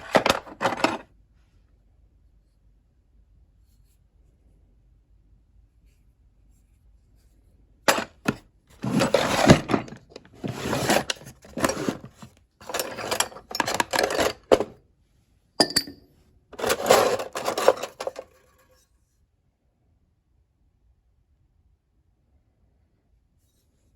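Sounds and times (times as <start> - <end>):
metal tools clattering in toolbox: 0.0 - 1.0, 7.9 - 14.8, 15.6 - 16.0, 16.6 - 18.4.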